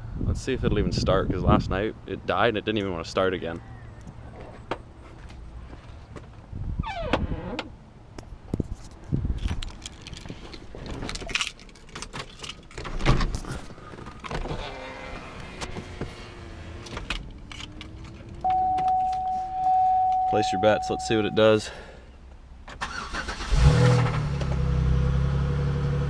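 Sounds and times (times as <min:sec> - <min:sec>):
car door creaking: 0:06.8 - 0:07.8, 0:09.4 - 0:20.7.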